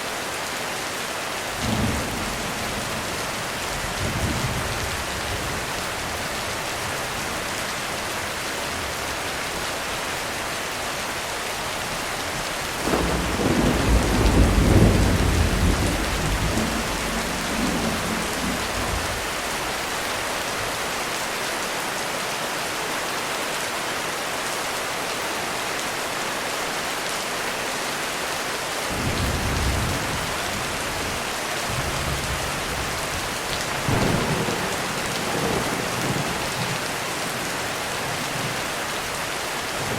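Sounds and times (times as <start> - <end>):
heavy rain on a roof: 0.0 - 39.9
rumble of thunder: 12.8 - 19.3.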